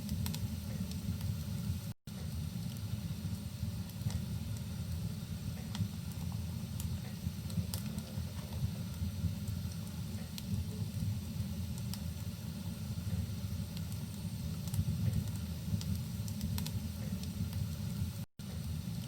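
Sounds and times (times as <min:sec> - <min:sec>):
muffled rumble of rain: 0:00.0 - 0:19.0
wood fire crackling: 0:00.0 - 0:19.0.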